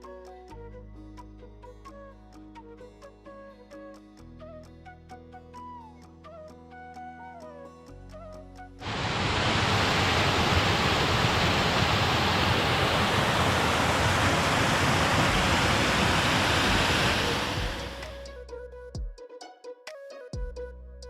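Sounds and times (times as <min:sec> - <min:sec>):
loud steady rushing noise: 0:08.8 - 0:18.2.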